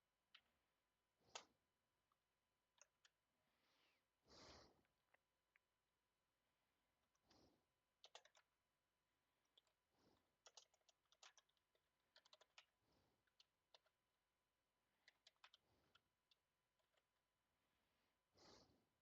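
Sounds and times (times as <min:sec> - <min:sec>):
soft breaths: 0:03.4 - 0:05.2, 0:07.0 - 0:07.9, 0:09.6 - 0:11.4, 0:16.8 - 0:19.0
typing on computer keyboard: 0:08.0 - 0:08.5, 0:10.4 - 0:14.0, 0:15.0 - 0:16.4.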